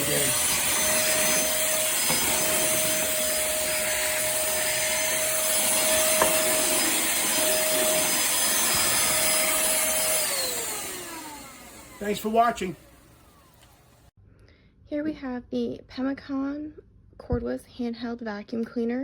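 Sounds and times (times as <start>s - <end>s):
handheld vacuum cleaner whining: 0.0s - 14.1s.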